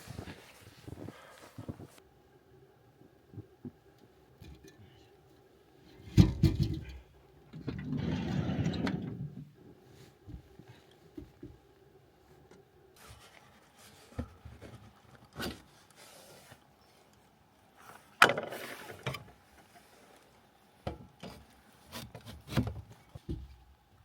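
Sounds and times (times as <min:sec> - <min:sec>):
rustling: 0:00.0 - 0:02.0, 0:13.0 - 0:23.6.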